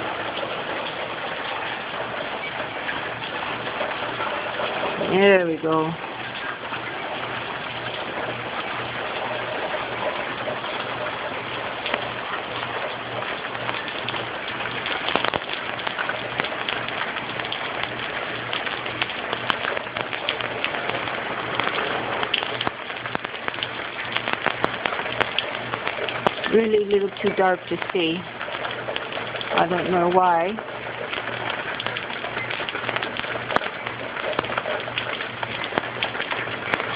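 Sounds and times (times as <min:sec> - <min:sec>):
heavy rain falling: 0:00.0 - 0:36.9.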